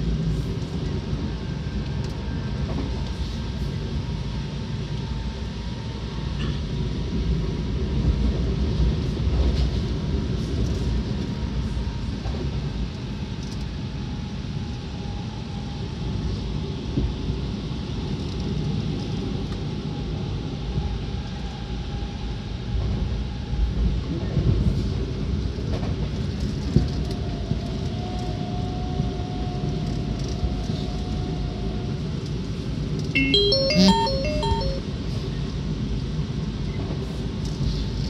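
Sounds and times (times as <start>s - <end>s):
faint steady tone: 33.2s - 34.8s.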